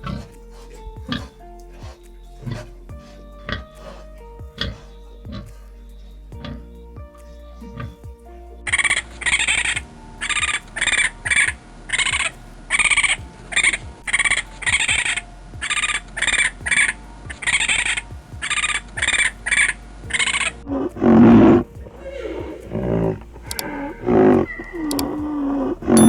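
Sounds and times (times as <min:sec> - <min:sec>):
deeper animal call: 0:20.8 - 0:26.0.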